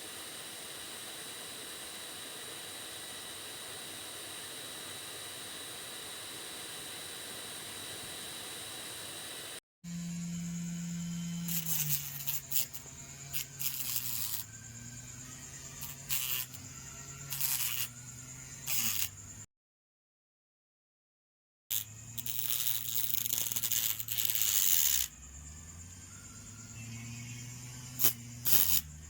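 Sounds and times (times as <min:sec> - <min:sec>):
motor grinder whirring: 0:06.9 - 0:19.4, 0:21.7 - 0:29.0
harsh grinding bursts: 0:10.3 - 0:19.2, 0:21.7 - 0:25.2, 0:26.7 - 0:29.0.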